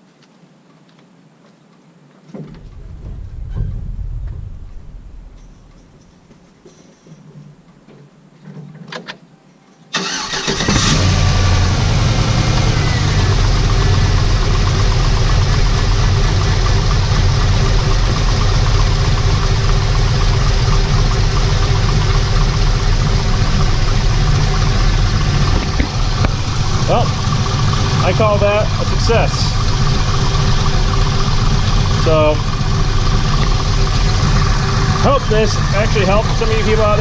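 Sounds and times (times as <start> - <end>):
car engine idling: 2.5 - 6.6, 10.0 - 37.0
car engine cranking: 10.0 - 37.0.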